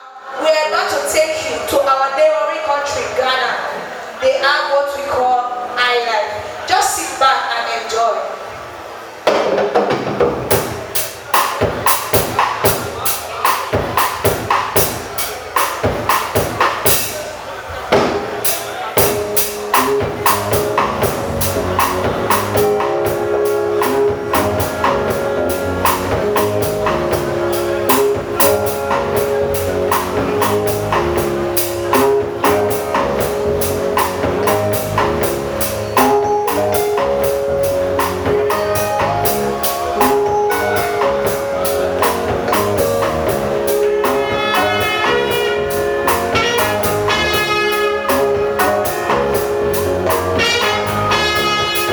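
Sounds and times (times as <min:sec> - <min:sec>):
drum kit groove: 0:09.3 - 0:51.9
bright melody line: 0:19.0 - 0:51.9
instruments playing repeating melody: 0:19.0 - 0:51.9.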